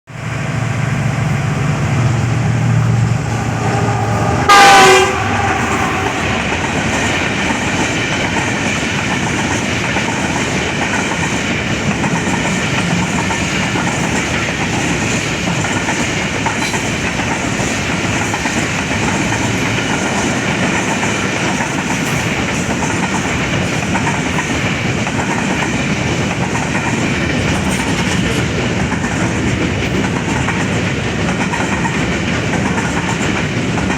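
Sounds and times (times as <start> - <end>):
train horn blast: 2.0 - 6.9
freight train wagons clattering on rails: 4.0 - 33.9.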